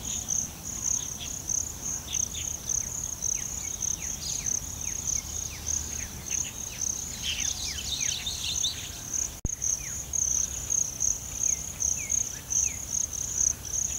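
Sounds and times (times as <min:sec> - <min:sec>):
insects chirping: 0:00.0 - 0:13.9
birds whistling: 0:03.4 - 0:09.0.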